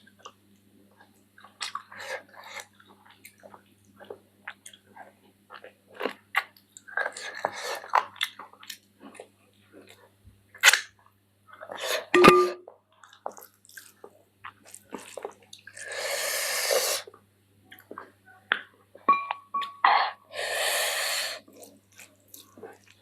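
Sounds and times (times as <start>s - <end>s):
loud breath drawn in: 20.3s - 21.4s.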